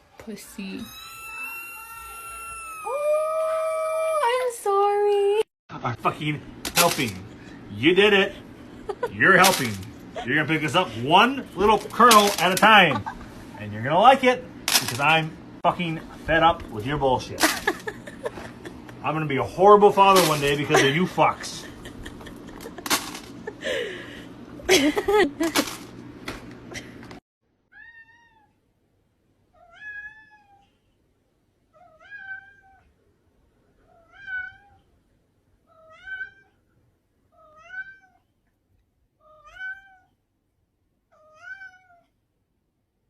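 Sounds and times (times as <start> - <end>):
cat meowing: 0.8 - 2.9, 27.7 - 28.6, 29.6 - 30.6, 31.8 - 32.9, 33.9 - 34.9, 35.7 - 36.6, 37.3 - 38.3, 39.2 - 40.2, 41.1 - 42.1
short cry: 0.8 - 4.2.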